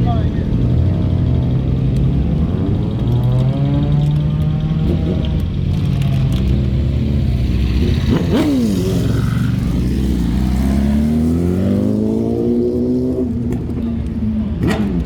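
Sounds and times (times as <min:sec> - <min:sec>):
sports car engine revving: 0:00.3 - 0:15.0.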